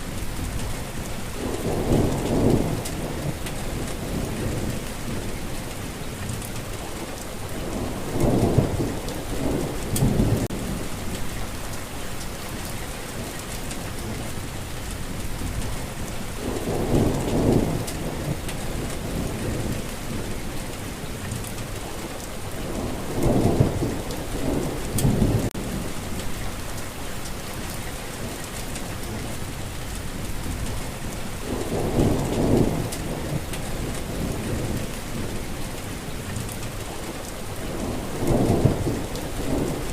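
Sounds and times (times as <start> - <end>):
heavy rain falling: 0.0 - 39.9
rolling thunder: 0.2 - 5.4, 7.5 - 11.7, 15.1 - 21.3, 22.6 - 26.6, 27.8 - 39.9.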